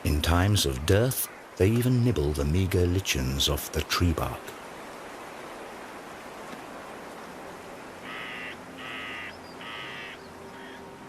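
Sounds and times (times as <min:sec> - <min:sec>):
steady hiss: 0:00.0 - 0:10.0
bird harsh calls: 0:08.0 - 0:10.8.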